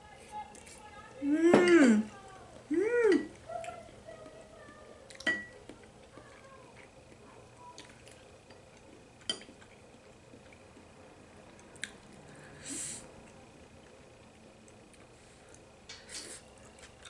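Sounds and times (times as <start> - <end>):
short breathy hiss: 12.6 - 13.1.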